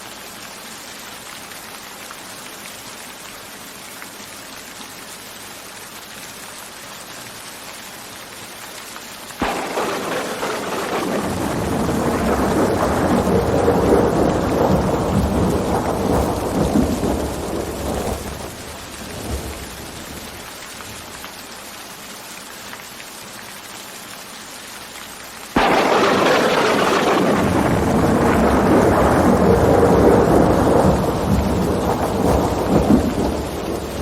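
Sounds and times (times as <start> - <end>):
steady rain: 0.0 - 34.0
sudden loud burst of noise: 9.4 - 18.8
rolling thunder rumble: 9.4 - 20.5, 25.6 - 34.0.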